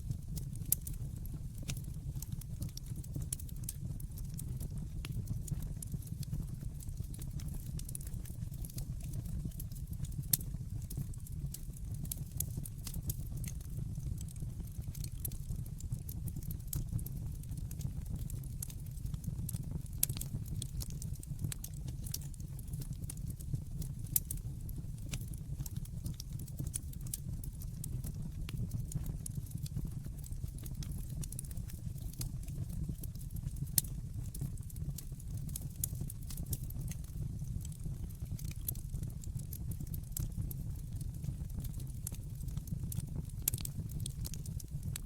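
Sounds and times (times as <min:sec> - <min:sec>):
wood fire crackling: 0:00.0 - 0:45.0.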